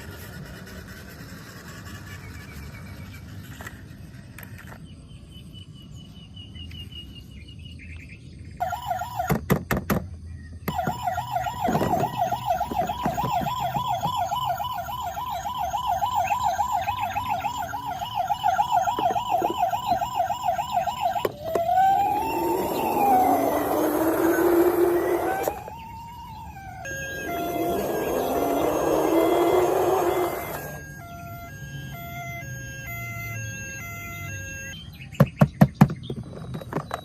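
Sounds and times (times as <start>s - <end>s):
toy car electronic siren wailing: 8.6s - 9.4s, 10.7s - 34.8s.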